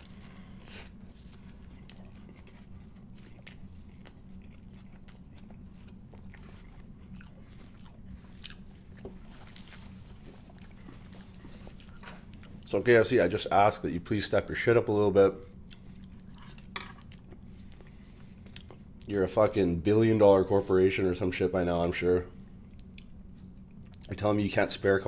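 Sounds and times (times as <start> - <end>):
chewing crispy food: 0.0 - 13.5, 15.4 - 19.6, 22.5 - 24.3
low steady hum: 0.0 - 25.0.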